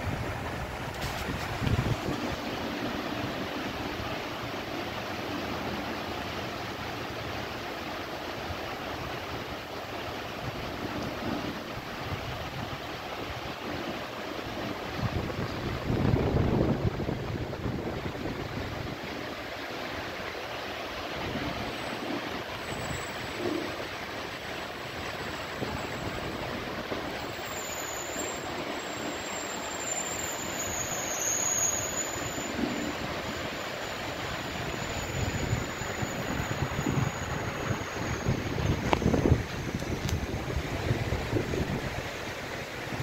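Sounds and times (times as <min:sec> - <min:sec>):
wind buffeting microphone: 0:00.0 - 0:03.4, 0:14.9 - 0:19.1, 0:34.6 - 0:43.0
heavy rain pouring: 0:00.0 - 0:43.0.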